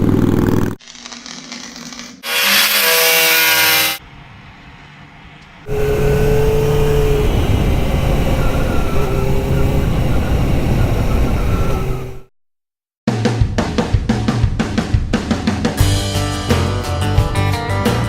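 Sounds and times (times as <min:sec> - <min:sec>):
motorcycle engine running: 0:00.0 - 0:00.8, 0:05.7 - 0:12.3
rushing rumble: 0:04.1 - 0:12.3.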